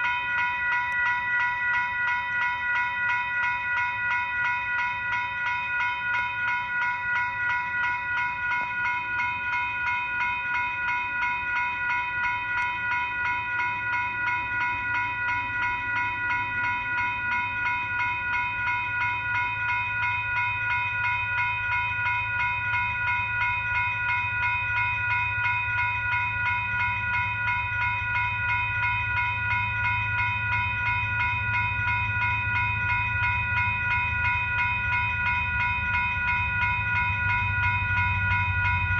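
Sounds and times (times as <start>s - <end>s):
railroad crossing bell ringing: 0.0s - 38.9s
train rumbling: 11.1s - 38.9s.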